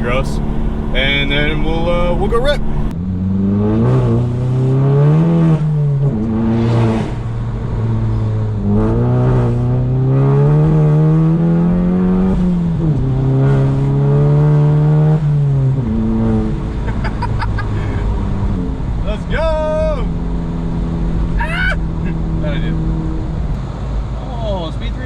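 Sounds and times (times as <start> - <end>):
car engine accelerating hard: 0.0 - 25.0.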